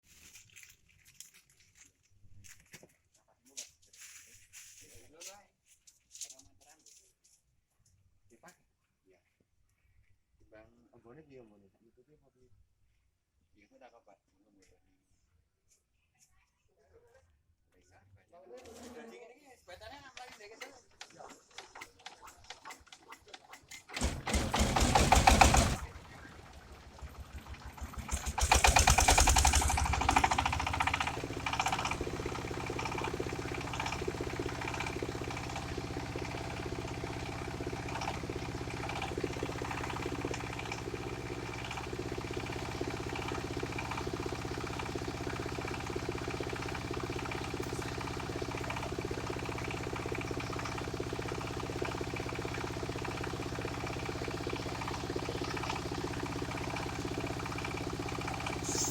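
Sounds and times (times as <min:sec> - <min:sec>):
saw engine starting and running: 0:21.2 - 0:58.9.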